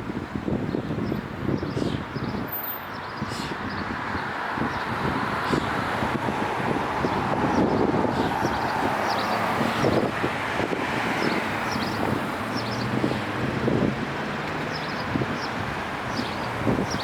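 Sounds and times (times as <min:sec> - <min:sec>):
street traffic noise: 0:00.0 - 0:17.0
wind buffeting microphone: 0:00.0 - 0:17.0.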